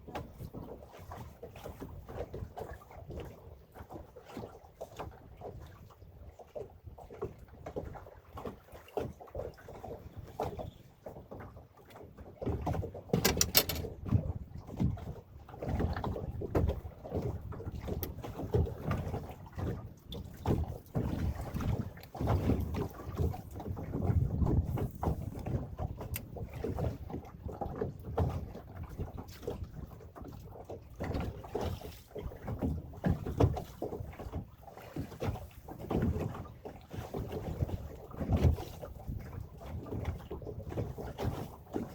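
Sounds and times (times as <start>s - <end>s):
water lapping at hull: 0.0s - 41.9s
wind rumbling on microphone: 19.6s - 29.9s
wind noise: 23.6s - 25.6s.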